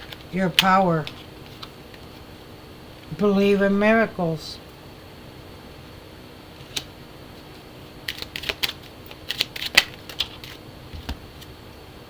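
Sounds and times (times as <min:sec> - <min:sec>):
cards shuffling and snapping: 0:06.6 - 0:06.9, 0:08.0 - 0:11.6.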